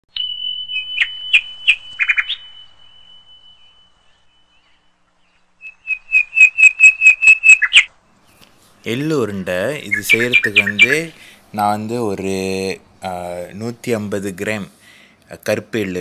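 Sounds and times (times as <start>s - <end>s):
bird chirping and whistling: 0.1s - 7.9s, 9.9s - 11.0s.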